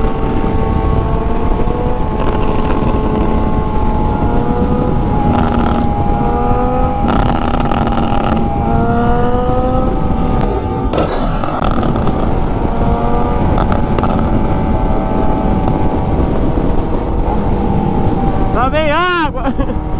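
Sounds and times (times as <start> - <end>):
motorcycle engine revving: 0.0 - 19.9.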